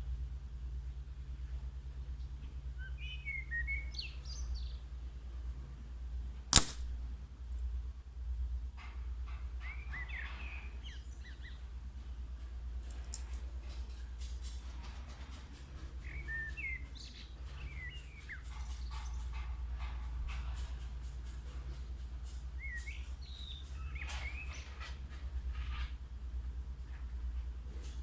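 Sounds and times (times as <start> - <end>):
birds chirping: 1.4 - 5.3, 9.0 - 25.6
air rifle shot: 6.5 - 7.1.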